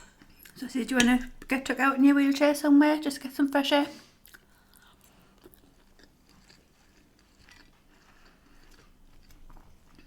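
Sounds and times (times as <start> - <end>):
person chewing food: 4.2 - 10.0.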